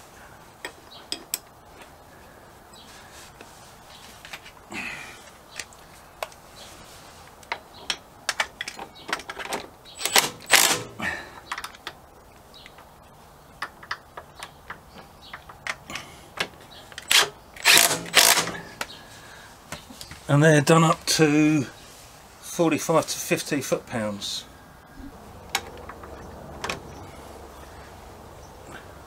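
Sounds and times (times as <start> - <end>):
metallic clicks of hand tools: 7.4 - 12.0.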